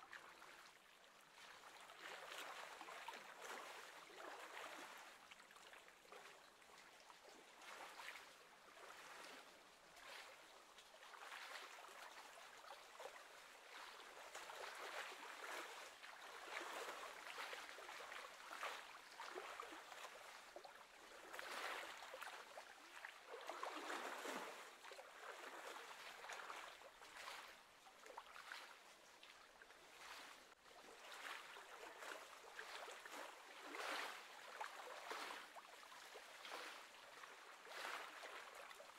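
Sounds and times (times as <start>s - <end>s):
lake water lapping: 11.1s - 38.9s.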